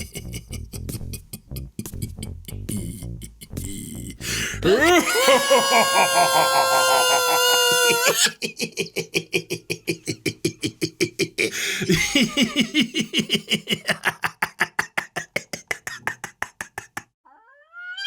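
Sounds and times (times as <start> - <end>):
rapid beatbox-like pulses: 0.0 - 4.2, 15.2 - 17.0.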